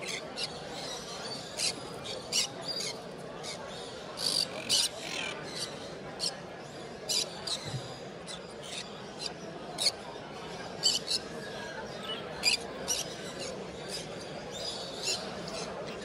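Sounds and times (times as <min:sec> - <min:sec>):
birds chirping and squeaking: 0:00.0 - 0:06.3
steady background murmur: 0:00.0 - 0:16.0.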